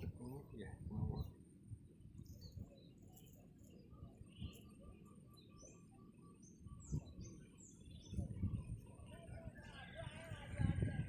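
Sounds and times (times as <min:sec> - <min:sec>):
faint birdsong chirps: 0:00.0 - 0:11.0
bird trill: 0:02.2 - 0:08.6.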